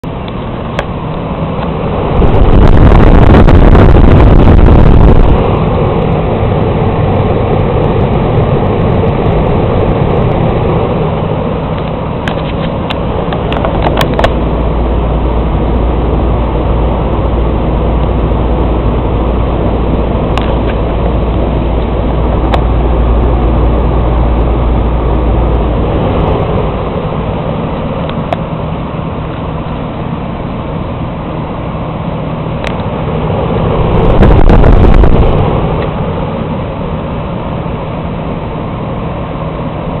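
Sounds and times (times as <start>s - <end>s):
hvac unit whooshing hum: 0.0s - 40.0s
deep low hum: 1.7s - 12.3s, 12.9s - 29.9s, 33.0s - 36.7s.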